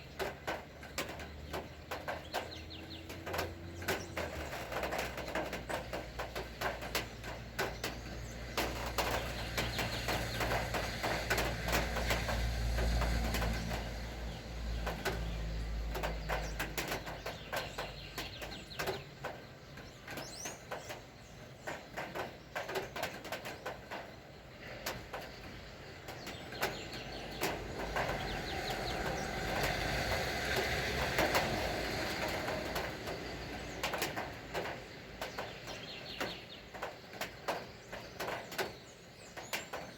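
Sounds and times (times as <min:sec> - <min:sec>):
rain falling: 0:00.0 - 0:39.9
sharp drips on surfaces: 0:00.0 - 0:39.9
vehicle engine hum passing: 0:00.1 - 0:18.6, 0:25.9 - 0:36.2.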